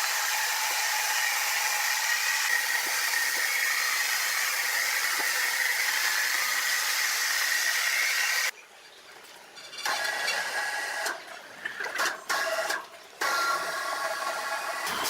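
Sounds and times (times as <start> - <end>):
sawmill machinery whining: 0.0 - 8.5, 12.3 - 15.0.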